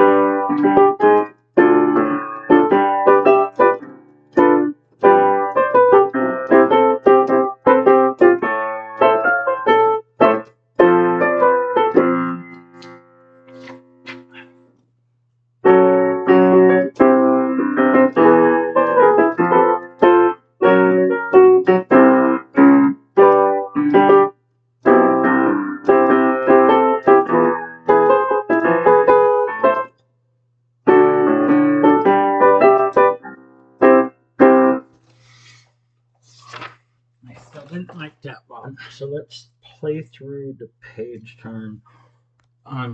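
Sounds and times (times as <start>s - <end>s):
piano chords: 0.0s - 14.8s, 15.6s - 30.0s, 30.9s - 35.0s.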